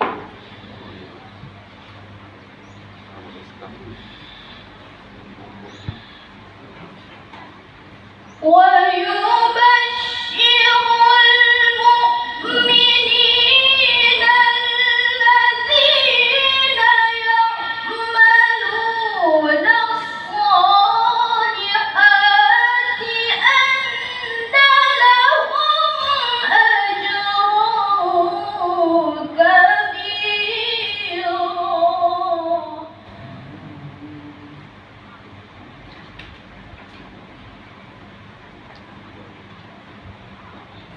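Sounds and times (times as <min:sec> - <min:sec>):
girl reciting melodically: 0:08.4 - 0:33.0.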